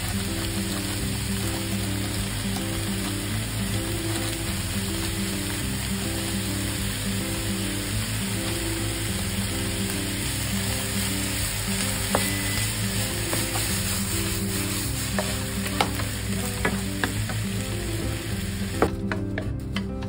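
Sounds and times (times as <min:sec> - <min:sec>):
vegetables sizzling in frying pan: 0:00.0 - 0:19.8
spatula knocking and scraping pan: 0:11.5 - 0:20.0.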